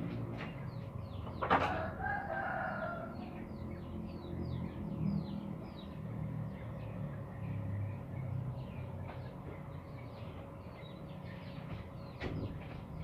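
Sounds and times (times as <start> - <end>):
small birds chirping: 0.0 - 13.0
rooster crowing: 1.6 - 3.4.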